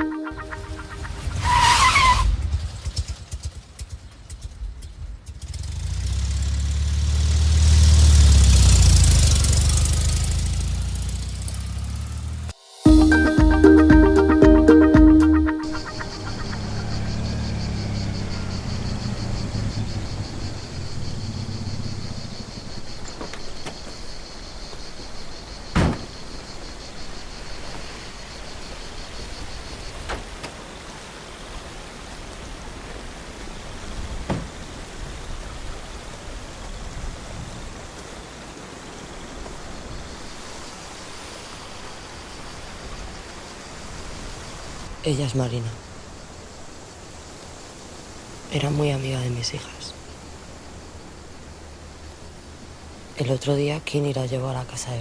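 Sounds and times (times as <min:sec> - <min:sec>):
car engine driving past: 0:05.4 - 0:12.8, 0:16.1 - 0:22.6
insects chirring: 0:15.7 - 0:31.0, 0:36.7 - 0:55.0
loud thump: 0:25.7 - 0:26.2.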